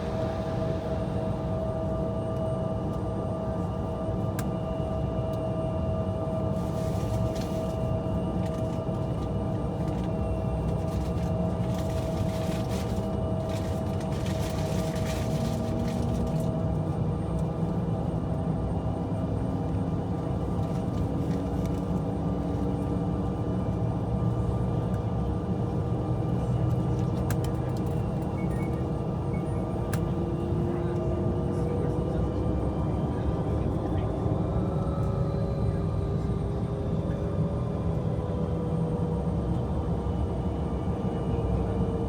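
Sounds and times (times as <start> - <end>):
jet cabin rumble: 0.0 - 42.0.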